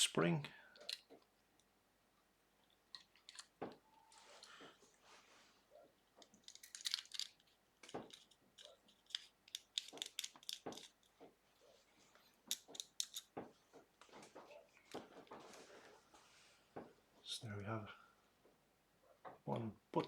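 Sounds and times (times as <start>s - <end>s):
metal parts clicking and tapping: 2.9s - 3.6s, 6.2s - 11.2s, 12.5s - 13.4s.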